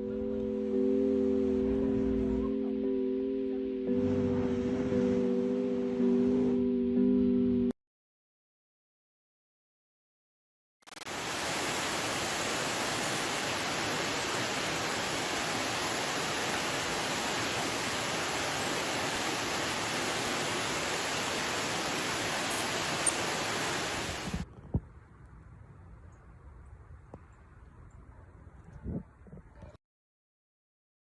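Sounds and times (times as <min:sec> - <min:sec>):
rushing water: 0:11.1 - 0:24.4
quiet hiss: 0:11.2 - 0:28.1.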